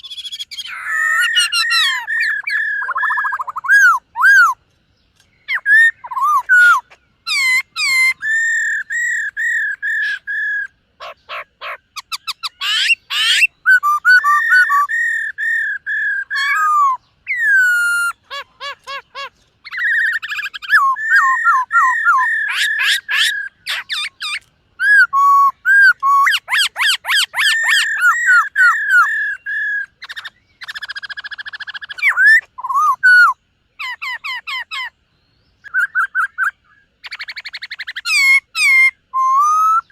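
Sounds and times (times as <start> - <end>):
bird singing whistles and trills: 0.0 - 39.9.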